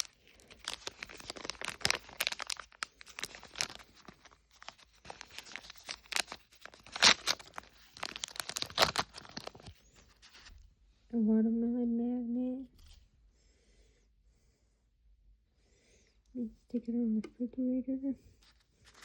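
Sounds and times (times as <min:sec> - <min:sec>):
plastic bag tearing and crinkling: 0:00.0 - 0:10.4.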